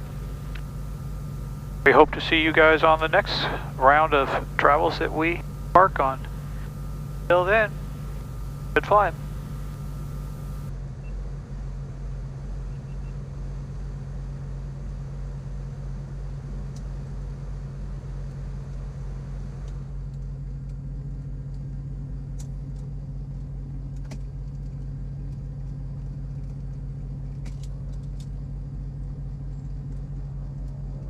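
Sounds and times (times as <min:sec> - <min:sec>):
twin aircraft engines droning: 0:00.0 - 0:10.7.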